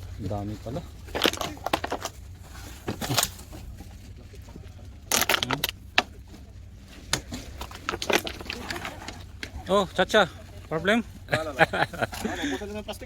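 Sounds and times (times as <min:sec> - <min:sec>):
plastic crackling and crunching: 0:00.6 - 0:09.7.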